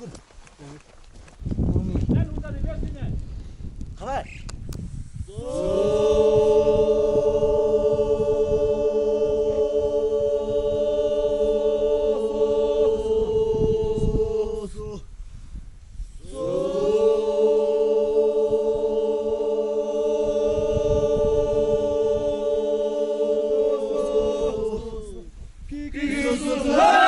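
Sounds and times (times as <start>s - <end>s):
voices chanting a held note: 5.3s - 14.9s, 16.2s - 25.3s.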